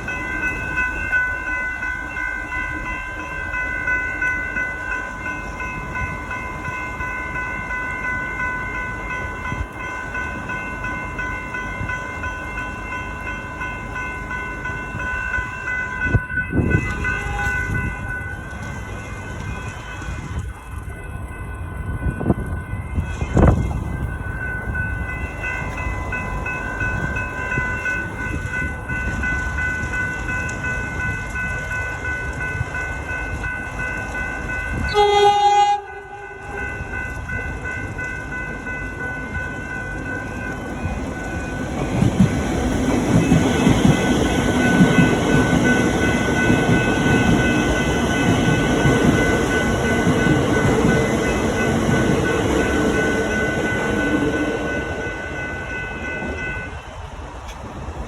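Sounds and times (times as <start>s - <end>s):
train wheels rumbling on rails: 0.0s - 58.0s
train horn blast: 16.7s - 17.8s, 34.8s - 36.8s.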